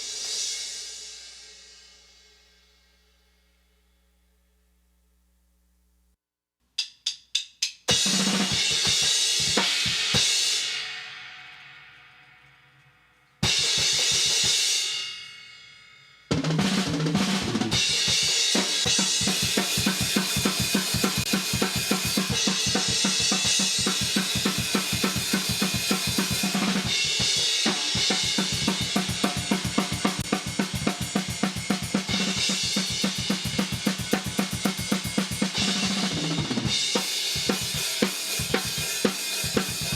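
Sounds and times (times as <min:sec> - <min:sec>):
drumstick clicks: 0:06.8 - 0:07.9
fast metal drumming: 0:16.3 - 0:39.9.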